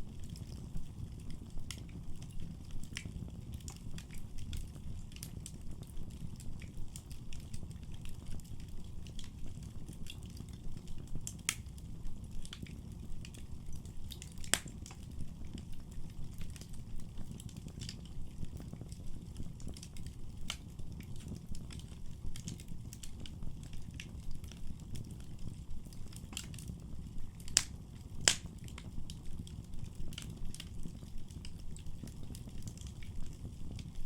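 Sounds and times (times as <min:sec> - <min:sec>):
wood fire crackling: 0:00.0 - 0:34.0
sharp pops of fire: 0:14.1 - 0:15.0, 0:20.4 - 0:21.4, 0:27.3 - 0:29.2.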